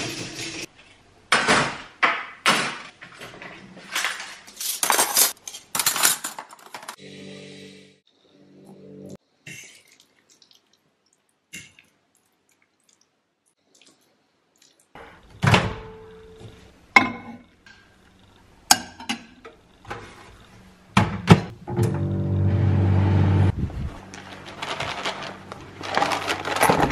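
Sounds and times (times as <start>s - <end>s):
kitchen items knocking and clinking: 1.3s - 7.0s, 15.0s - 17.8s, 21.0s - 21.5s, 24.2s - 26.9s.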